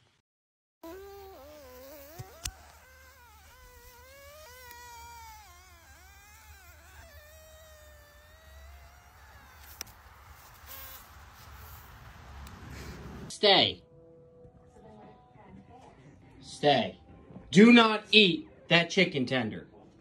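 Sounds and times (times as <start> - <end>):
sharp clicks: 2.0 - 2.8, 9.4 - 10.0.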